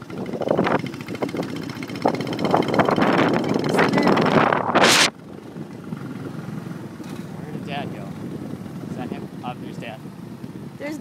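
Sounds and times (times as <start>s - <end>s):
motorbike traffic: 0.0s - 11.0s
wind buffeting microphone: 0.0s - 11.0s
loud rushing burst: 4.0s - 5.2s.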